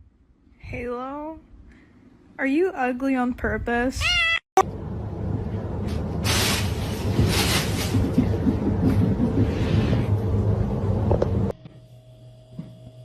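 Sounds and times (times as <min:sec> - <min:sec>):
low rumble with hiss: 0:04.6 - 0:11.5.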